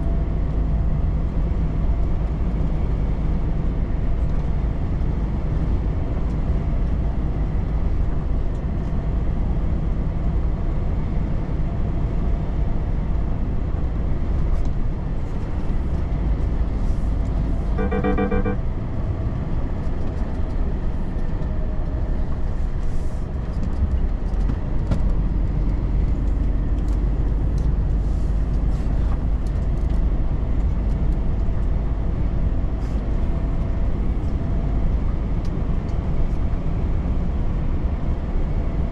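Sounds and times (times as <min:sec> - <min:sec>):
truck engine and tyre rumble: 0:00.0 - 0:38.9
brief pulsed tone: 0:17.8 - 0:18.7.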